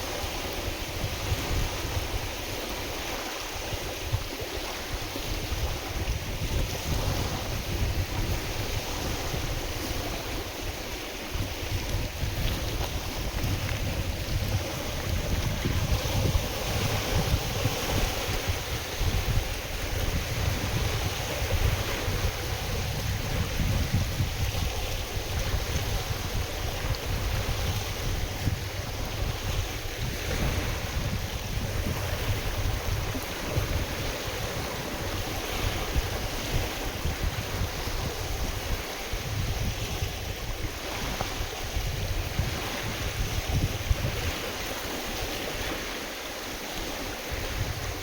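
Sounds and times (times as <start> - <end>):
waves washing on a lake: 0.0 - 48.0
wind on microphone: 0.0 - 48.0.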